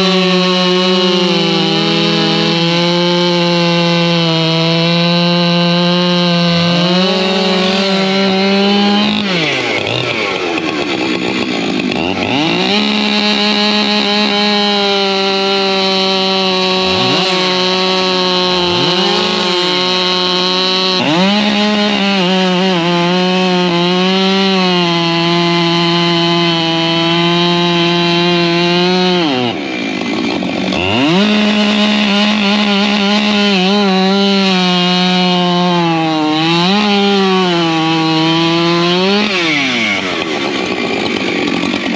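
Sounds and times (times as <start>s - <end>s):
chainsaw revving: 0.0s - 41.9s.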